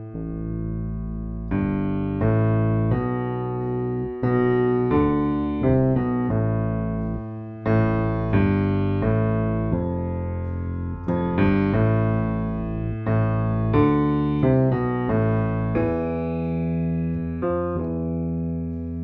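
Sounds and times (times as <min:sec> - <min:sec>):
piano chords ringing: 0:00.0 - 0:19.0.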